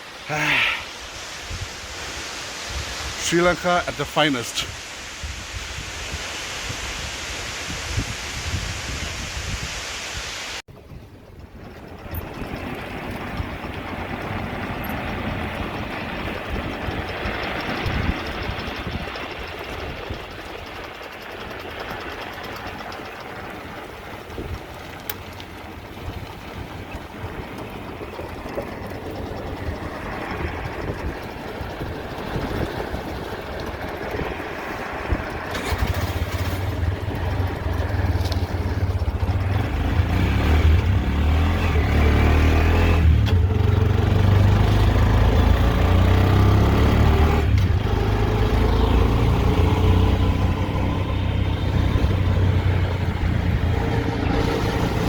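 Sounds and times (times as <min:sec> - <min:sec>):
vehicle engine pulling away: 0:11.6 - 0:55.0.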